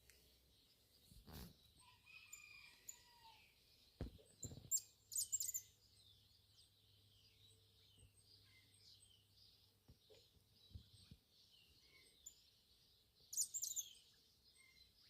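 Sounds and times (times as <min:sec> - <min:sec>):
mid-pitched bird calls: 0:00.0 - 0:15.0
high bird chirping: 0:04.0 - 0:15.0.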